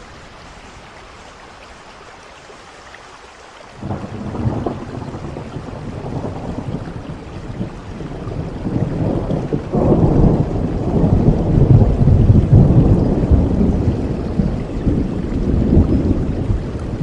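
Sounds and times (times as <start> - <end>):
steady rain: 0.0 - 17.0
thunder rumbling: 3.8 - 17.0.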